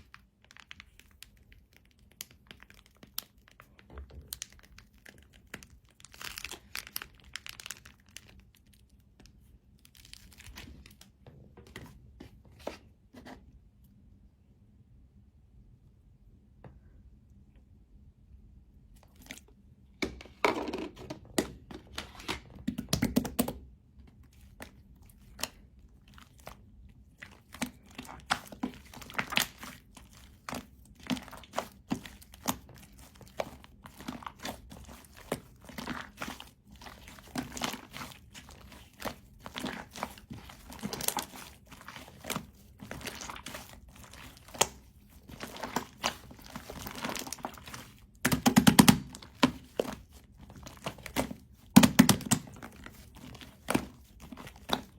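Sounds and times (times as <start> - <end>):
slime squishing sticky crackles: 0.0 - 11.2, 24.0 - 54.9.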